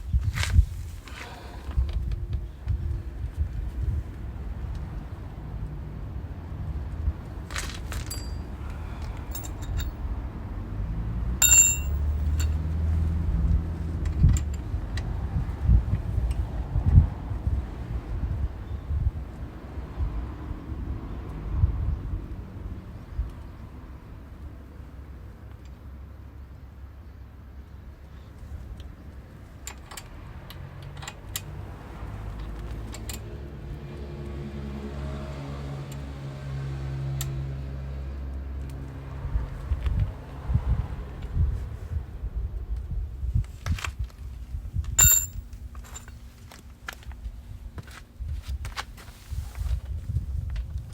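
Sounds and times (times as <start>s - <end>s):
metal clinks and knocks: 7.5s - 10.0s, 11.4s - 12.7s, 44.9s - 46.4s.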